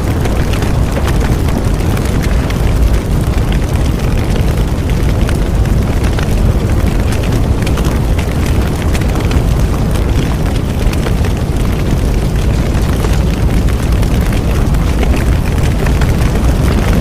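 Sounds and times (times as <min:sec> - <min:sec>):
bonfire roar: 0:00.0 - 0:17.0
fire crackling and popping: 0:00.0 - 0:17.0.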